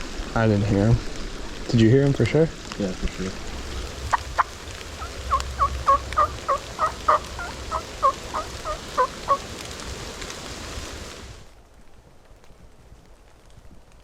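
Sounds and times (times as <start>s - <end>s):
turkey yelping: 4.1s - 9.4s.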